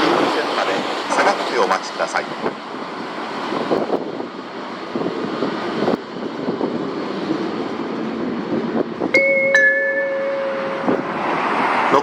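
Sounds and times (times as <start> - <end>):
train wheels rumbling on rails: 0.0 - 9.2.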